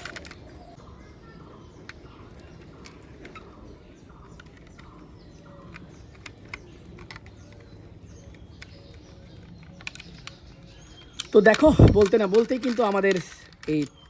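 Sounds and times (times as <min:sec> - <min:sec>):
plastic toy parts clicking: 0:00.0 - 0:00.8, 0:01.7 - 0:14.0
faint bird chirps: 0:00.0 - 0:12.2.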